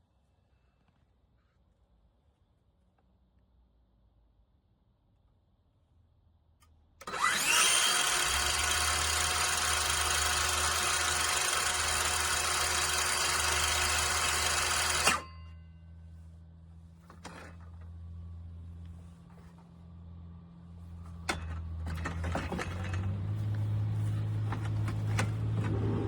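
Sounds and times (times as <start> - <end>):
circular saw running: 7.0 - 15.3.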